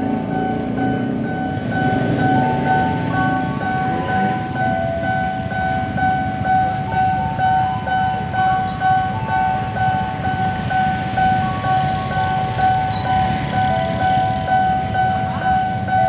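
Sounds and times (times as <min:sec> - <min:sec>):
level crossing warning bell: 0:00.0 - 0:16.0
low traffic rumble: 0:00.0 - 0:16.0.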